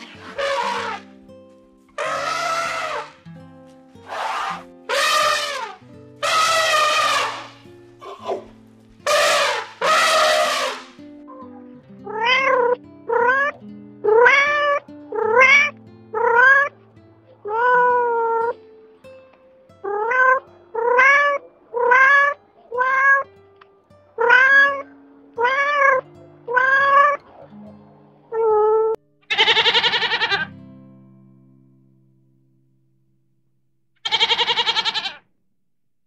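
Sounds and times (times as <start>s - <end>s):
elephant trumpeting: 0.0s - 1.2s, 2.0s - 3.2s, 4.0s - 8.4s, 9.0s - 11.0s, 29.3s - 30.5s, 34.0s - 35.2s
soft background music: 0.0s - 28.9s
cat meowing: 2.0s - 3.1s, 12.1s - 16.7s, 17.4s - 18.4s, 19.9s - 23.3s, 24.2s - 27.2s, 28.4s - 30.5s, 34.0s - 35.2s.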